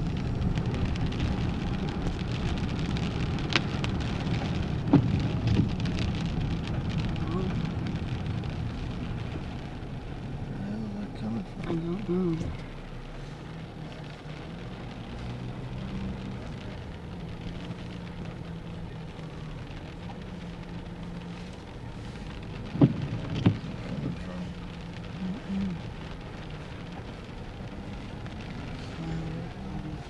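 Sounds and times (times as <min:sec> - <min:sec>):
car engine hum: 0:00.0 - 0:30.0
road noise: 0:00.0 - 0:30.0.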